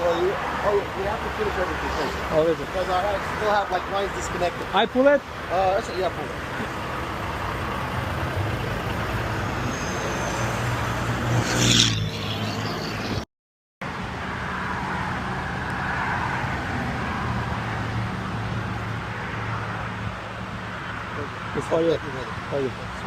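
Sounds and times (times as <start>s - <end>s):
diesel truck engine idling: 0.0s - 10.9s.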